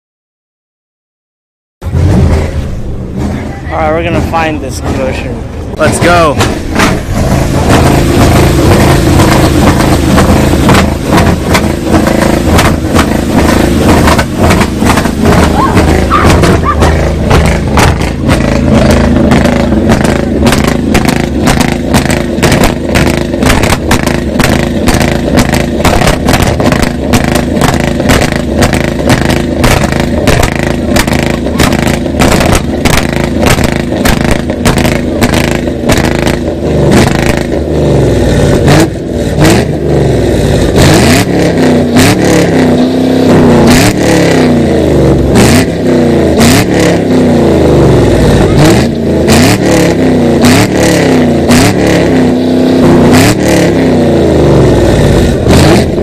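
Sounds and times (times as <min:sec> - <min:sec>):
car engines revving hard: 0:01.8 - 0:56.0
sharp exhaust pops: 0:01.8 - 0:56.0.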